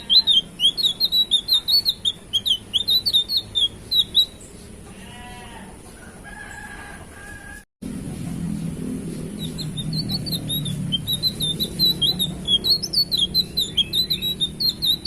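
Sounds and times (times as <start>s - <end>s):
songbird chirping: 0.0s - 4.9s, 8.9s - 15.0s.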